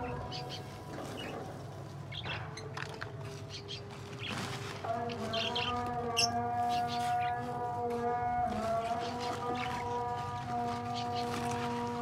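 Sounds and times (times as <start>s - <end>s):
pet birds chirping: 5.1s - 7.5s.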